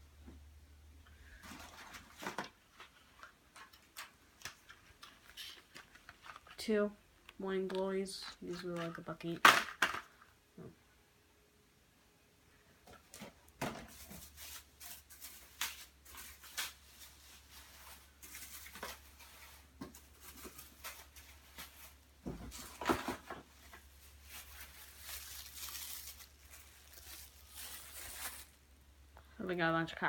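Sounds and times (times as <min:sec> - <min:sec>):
packaging rustling and knocking: 0:16.1 - 0:28.6.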